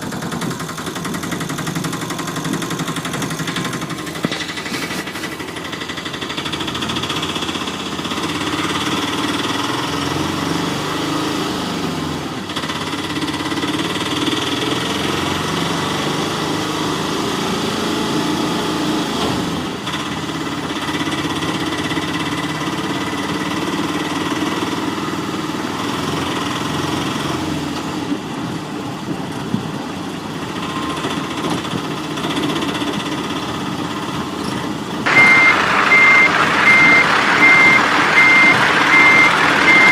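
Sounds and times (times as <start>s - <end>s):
reversing beep: 35.1s - 39.9s
toy vehicles humming and whining: 35.1s - 39.9s.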